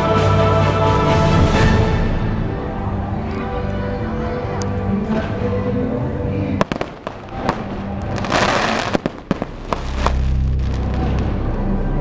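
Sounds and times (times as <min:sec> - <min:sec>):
music with bass: 0:00.0 - 0:06.7, 0:07.3 - 0:12.0
fireworks bangs and crackling: 0:06.6 - 0:11.4.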